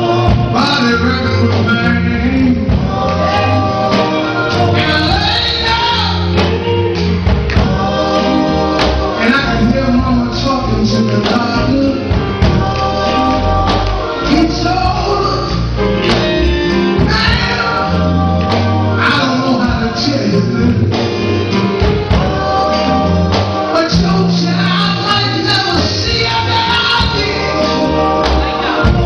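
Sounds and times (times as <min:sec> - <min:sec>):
male lead voice singing: 0:00.0 - 0:06.4, 0:07.6 - 0:15.7, 0:16.9 - 0:21.0, 0:22.2 - 0:29.0
backing choir singing: 0:00.0 - 0:29.0
bass line: 0:00.0 - 0:29.0
percussion hits: 0:02.6 - 0:10.6, 0:11.2 - 0:15.2, 0:20.9 - 0:29.0.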